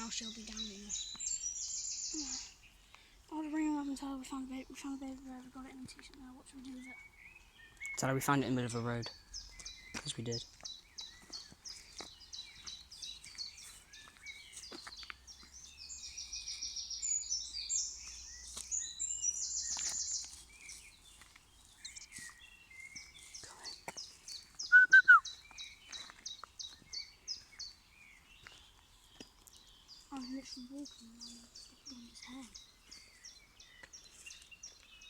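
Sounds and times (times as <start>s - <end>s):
birds chirping and trilling: 0.0s - 35.0s
loud bird call: 24.7s - 25.3s.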